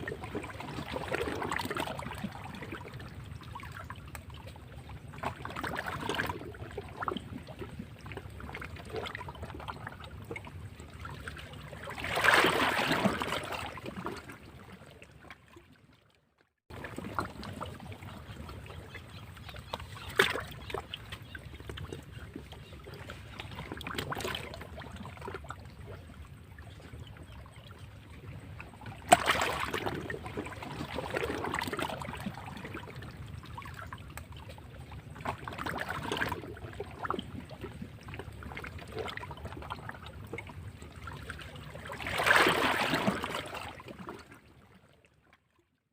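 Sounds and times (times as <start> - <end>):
sea waves splashing against rocks: 12.0 - 14.0, 29.1 - 31.8.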